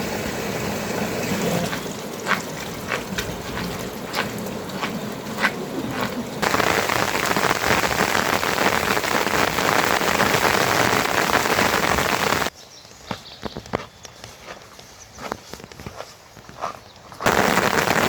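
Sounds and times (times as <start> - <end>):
heavy rain hissing: 0.0 - 12.5, 17.3 - 18.0
scattered water drops: 1.2 - 12.5.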